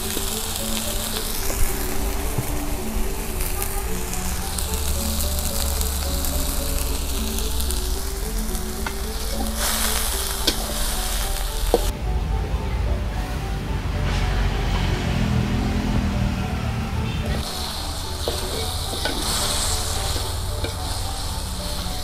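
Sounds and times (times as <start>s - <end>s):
spatula stirring: 0.0s - 11.9s, 17.4s - 22.0s
tofu sizzling in wok: 0.0s - 11.9s, 17.4s - 22.0s.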